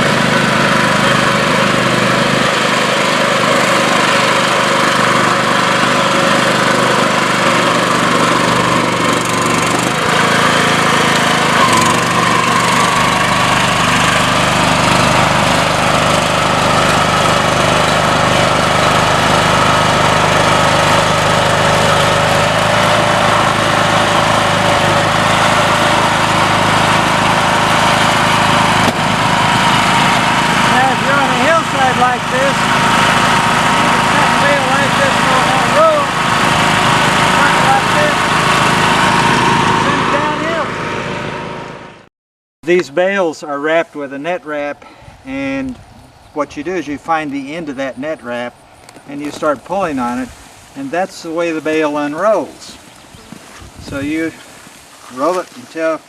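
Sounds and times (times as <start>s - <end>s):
small tractor engine running: 0.0s - 42.1s.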